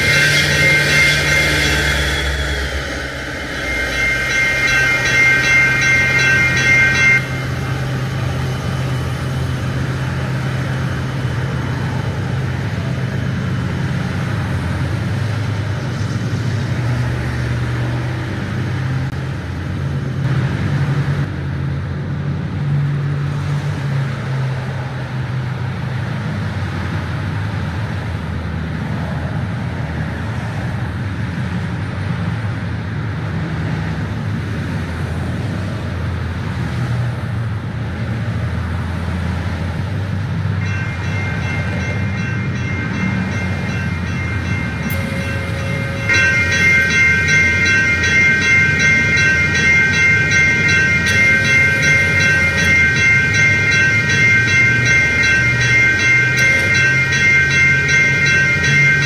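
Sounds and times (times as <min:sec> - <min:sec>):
railway bell ringing: 0:00.0 - 0:20.4, 0:38.0 - 0:59.0
train engine rumble: 0:00.0 - 0:59.0.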